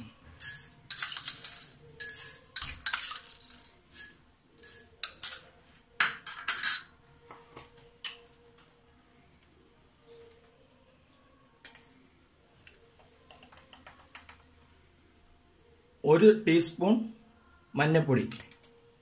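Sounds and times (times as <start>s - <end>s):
popcorn kernels rattling into dish: 0.4s - 5.4s.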